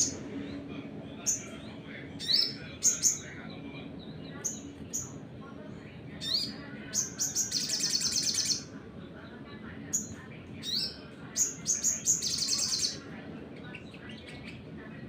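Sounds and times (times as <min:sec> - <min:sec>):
bird trilling song: 0:00.0 - 0:05.2, 0:06.2 - 0:08.7, 0:09.9 - 0:13.0.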